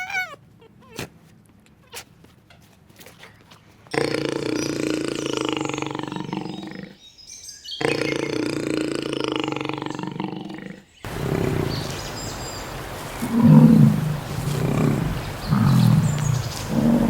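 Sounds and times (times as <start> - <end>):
pitched animal call: 0.0 - 1.1, 7.8 - 12.1, 13.2 - 17.0
deep low animal calls: 3.9 - 7.0, 7.8 - 17.0.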